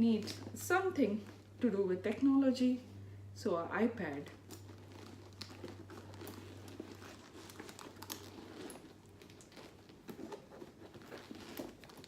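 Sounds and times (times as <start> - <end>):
tablet cover rustling and crinkling: 4.2 - 12.0.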